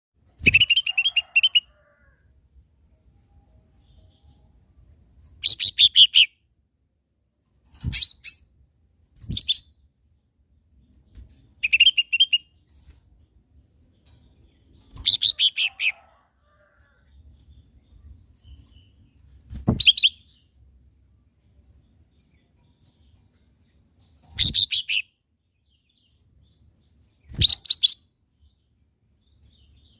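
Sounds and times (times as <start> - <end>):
bird singing high chirps: 27.2 - 28.1.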